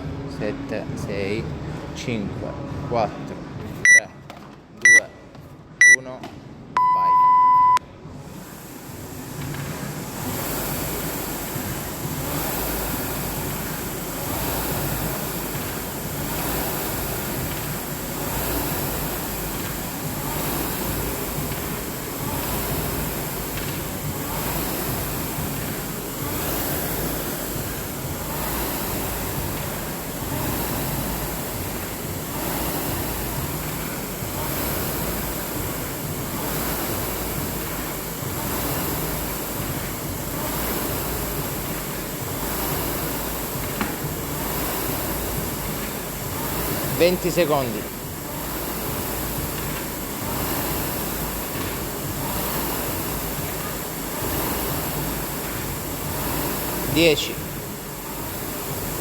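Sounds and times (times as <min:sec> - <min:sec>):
timer beep: 0:03.8 - 0:04.1, 0:04.8 - 0:05.1, 0:05.8 - 0:06.1, 0:06.8 - 0:07.8
rowing machine flywheel whooshing: 0:08.0 - 0:59.0.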